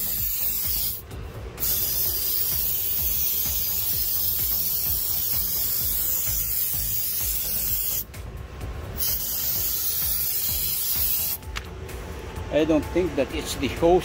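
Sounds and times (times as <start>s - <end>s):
spray cleaner hissing from can: 0.0s - 1.0s, 1.6s - 8.1s, 9.0s - 11.4s.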